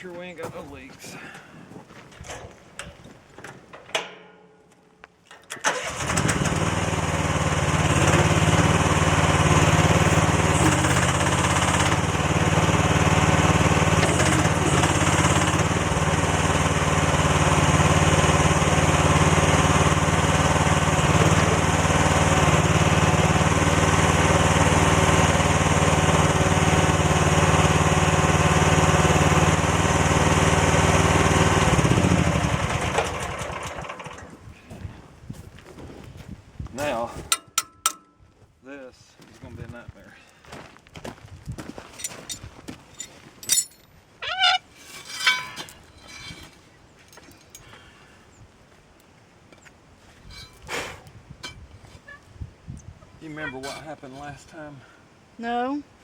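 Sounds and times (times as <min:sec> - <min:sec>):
excavator engine starting and running: 0:05.3 - 0:34.5.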